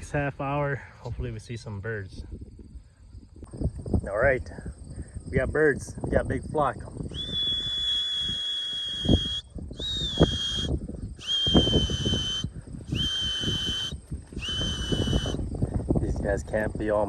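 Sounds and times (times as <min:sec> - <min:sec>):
wind buffeting microphone: 0:00.0 - 0:17.0
whistle blasts: 0:07.1 - 0:15.4.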